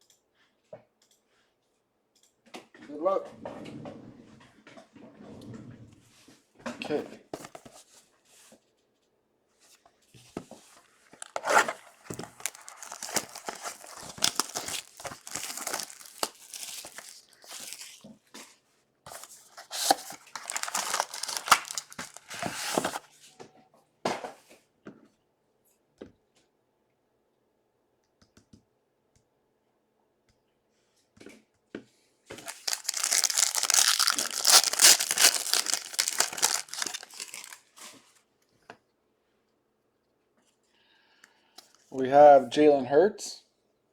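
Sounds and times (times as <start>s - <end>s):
plastic wrapping crinkling: 11.1s - 18.1s, 19.1s - 23.0s, 32.4s - 37.7s.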